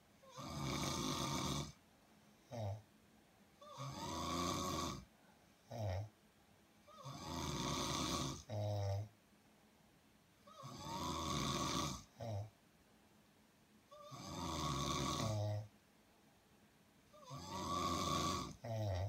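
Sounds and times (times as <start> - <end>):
person snoring: 0.2 - 1.8, 2.5 - 2.8, 3.6 - 5.1, 6.9 - 9.1, 10.5 - 12.5, 13.9 - 15.7, 17.1 - 19.0.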